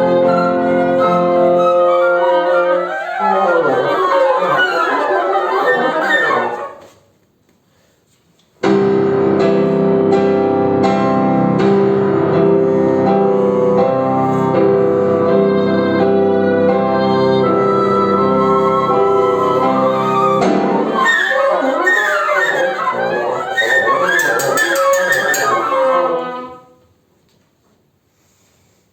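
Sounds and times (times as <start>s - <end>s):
flute oboe and bassoon playing: 0.0s - 6.9s, 12.6s - 26.8s.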